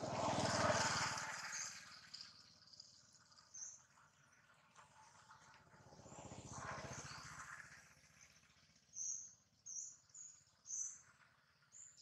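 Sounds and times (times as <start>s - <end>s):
low rapidly pulsing sound: 0.0s - 1.4s.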